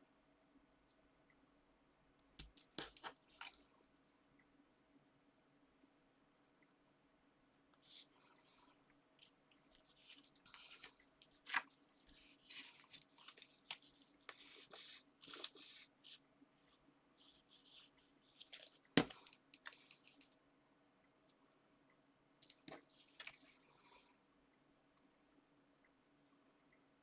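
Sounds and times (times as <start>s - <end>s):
paper rustling and sliding: 9.8s - 16.2s.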